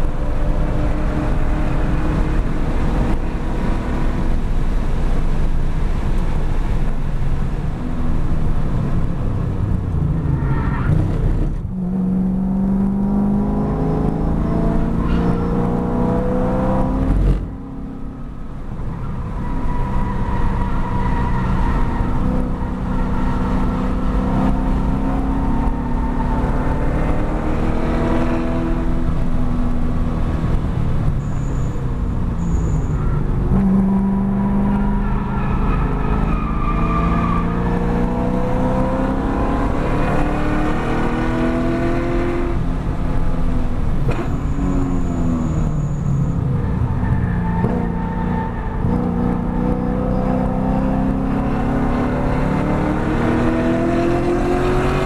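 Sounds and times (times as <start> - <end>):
car engine at high revs: 0.0 - 55.0.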